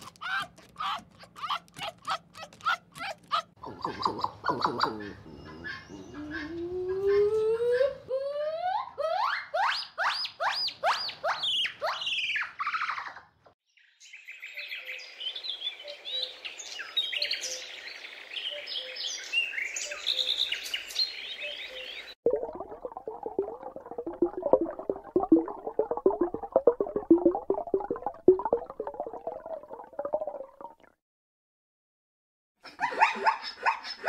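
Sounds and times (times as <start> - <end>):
birds chirping: 2.6 - 6.9, 13.8 - 22.2.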